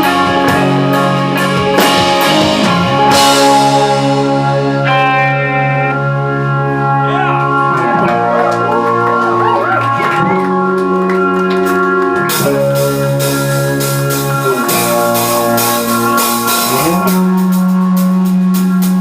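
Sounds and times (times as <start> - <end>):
drums and cymbals: 0.0 - 5.9, 11.7 - 19.0
electric guitar: 0.0 - 19.0
organ chord: 0.0 - 19.0.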